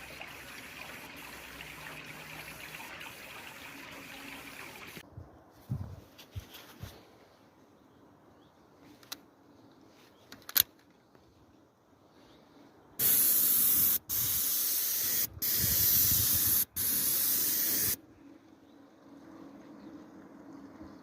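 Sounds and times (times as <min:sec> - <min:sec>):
spray gun hissing: 0:13.0 - 0:18.0.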